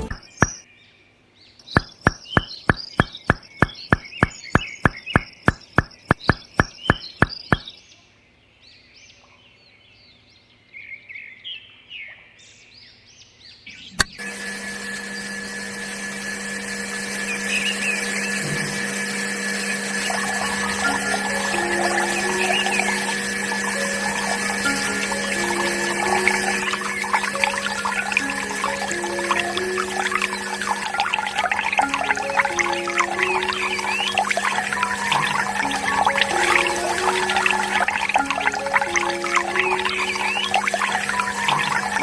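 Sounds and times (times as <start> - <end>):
bird chirps: 0.0 - 8.0, 19.8 - 42.0
small motor humming: 14.1 - 42.0.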